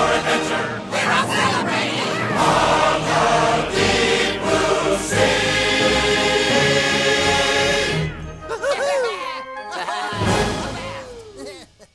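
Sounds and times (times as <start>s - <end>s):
chorus singing show tune: 0.0s - 8.9s
orchestra playing: 0.0s - 11.2s.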